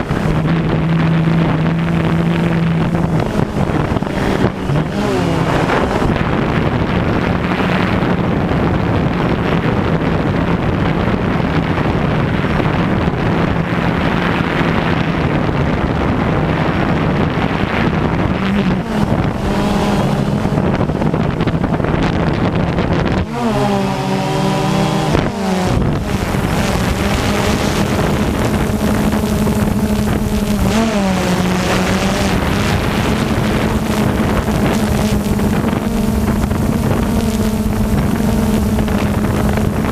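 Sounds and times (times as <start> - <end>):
drone propellers humming: 0.0 - 39.9
wind buffeting microphone: 0.0 - 39.9.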